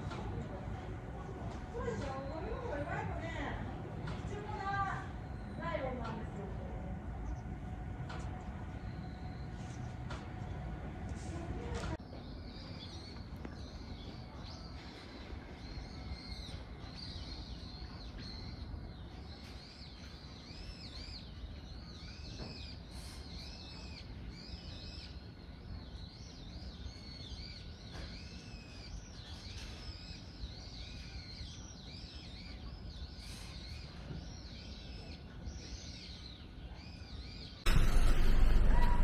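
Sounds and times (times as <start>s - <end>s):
low background noise: 0.0s - 39.0s
small birds chirping: 12.0s - 38.9s.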